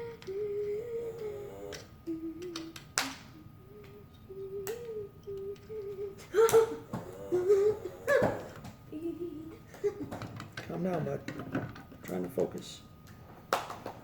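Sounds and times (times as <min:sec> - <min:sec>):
person humming: 0:00.0 - 0:09.7.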